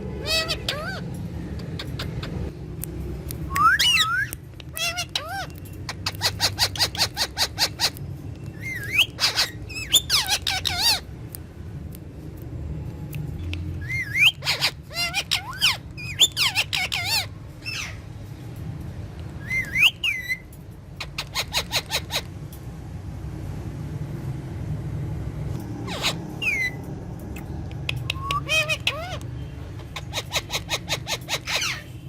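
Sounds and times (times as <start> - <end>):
parrot chattering and whistling: 0.2 - 2.6, 3.4 - 11.1, 13.4 - 18.0, 19.4 - 22.3, 25.8 - 32.0.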